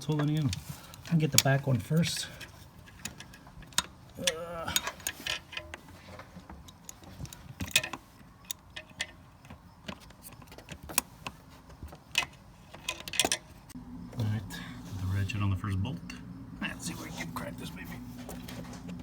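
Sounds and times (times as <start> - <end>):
hand tools clicking and clinking: 0.0 - 13.8.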